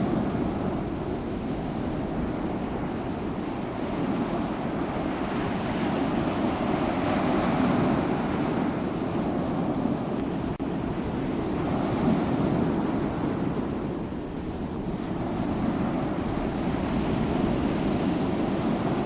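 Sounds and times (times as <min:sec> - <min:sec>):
sea waves surf rushing: 0:00.0 - 0:19.0.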